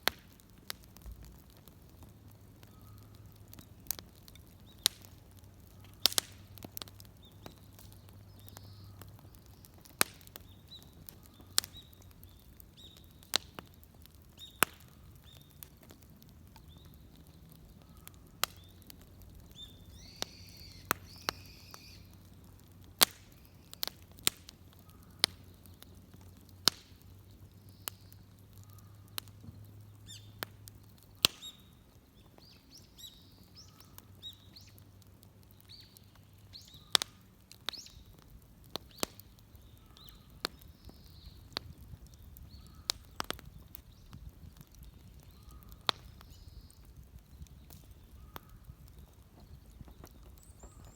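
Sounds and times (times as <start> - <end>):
bonfire crackling: 0.0 - 50.9
fire popping: 0.0 - 50.9
faint bird chirps: 2.6 - 3.2, 7.1 - 13.3, 16.6 - 22.2, 31.3 - 34.9, 38.9 - 44.2, 44.8 - 48.7, 49.4 - 50.9.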